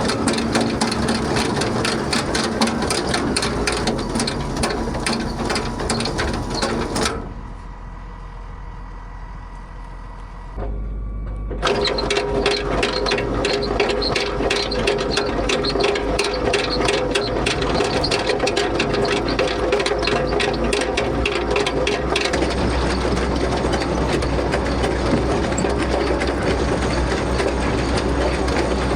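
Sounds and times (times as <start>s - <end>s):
farm machinery clattering: 0.0s - 7.8s, 11.4s - 28.9s.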